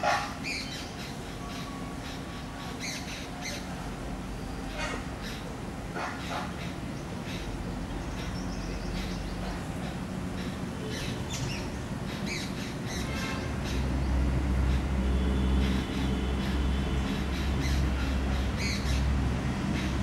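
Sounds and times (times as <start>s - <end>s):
birds chirping and squawking: 10.4s - 14.0s, 15.5s - 19.1s.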